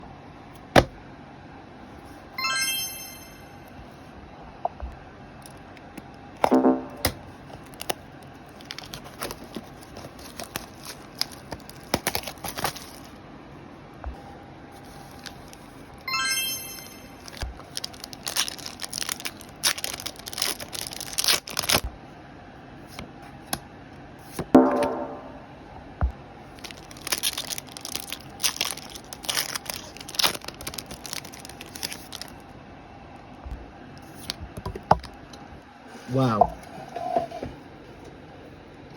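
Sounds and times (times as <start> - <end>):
bright chime-like note: 2.4 - 3.7, 16.1 - 17.2
short high-pitched tone: 2.4 - 3.7, 16.1 - 17.3
foil wrappers crinkling and tearing: 7.5 - 13.2, 14.8 - 16.0, 17.2 - 21.9, 26.5 - 32.4
low-pitched sound: 24.6 - 25.7.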